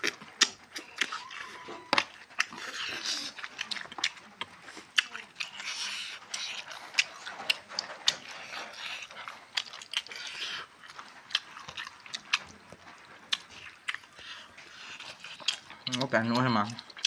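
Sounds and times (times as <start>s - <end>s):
chewing food: 0.0s - 17.0s
crunching: 0.0s - 17.0s
slurping: 0.0s - 17.0s.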